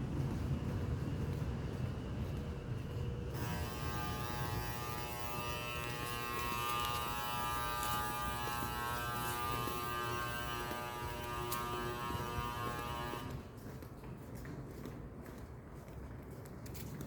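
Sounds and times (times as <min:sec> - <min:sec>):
low rumbling noise: 0:00.0 - 0:13.9
steady buzzing hum: 0:00.2 - 0:13.6.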